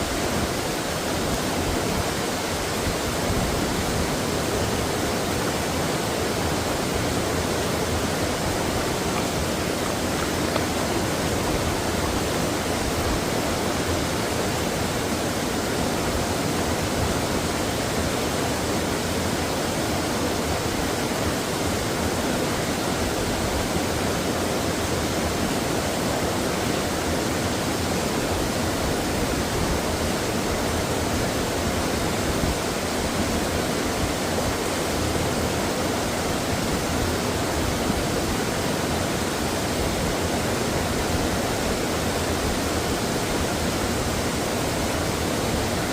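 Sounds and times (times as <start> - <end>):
stream water flowing: 0.0 - 45.9.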